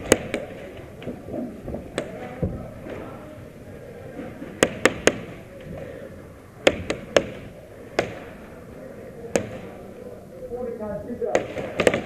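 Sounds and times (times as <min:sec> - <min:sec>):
airsoft gun shots: 0:04.6 - 0:05.4, 0:06.6 - 0:08.3, 0:11.3 - 0:12.0.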